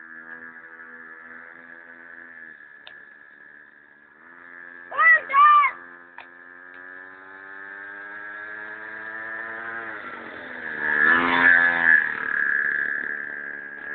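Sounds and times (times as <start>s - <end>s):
small atv engine revving: 0.0s - 13.9s.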